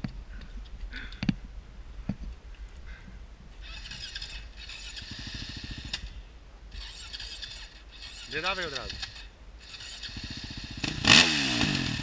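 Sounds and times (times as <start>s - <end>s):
dirt bike engine running: 3.8s - 6.2s, 6.8s - 12.0s.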